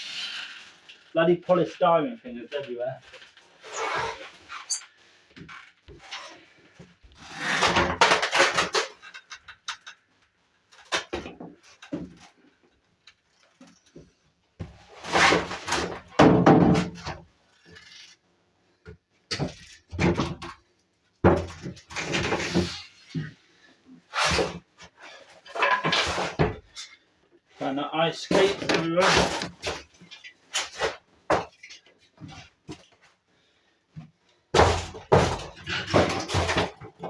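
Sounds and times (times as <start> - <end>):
objects knocking and scraping: 4.3 - 10.0, 13.4 - 18.2, 18.8 - 20.6, 21.2 - 27.0, 28.3 - 33.2, 34.0 - 37.0.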